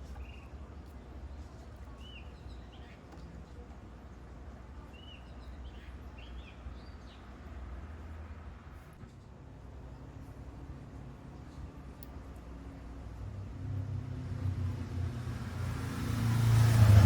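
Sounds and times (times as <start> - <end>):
small birds chirping: 0.0 - 4.2, 4.8 - 7.4.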